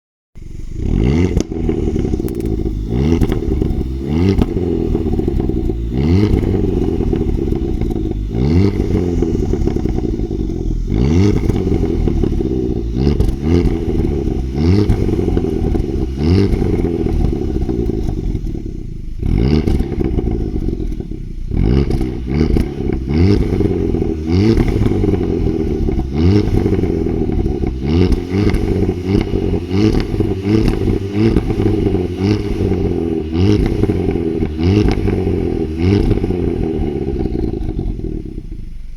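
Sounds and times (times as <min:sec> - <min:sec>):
car engine revving: 0:00.4 - 0:38.9.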